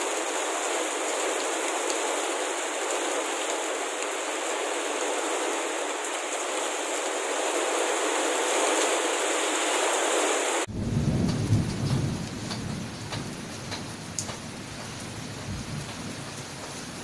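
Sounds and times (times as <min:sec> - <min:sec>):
heavy rain hissing: 0:00.0 - 0:17.0
rain drops ticking: 0:00.0 - 0:17.0
deep thunder rumble: 0:10.7 - 0:14.2.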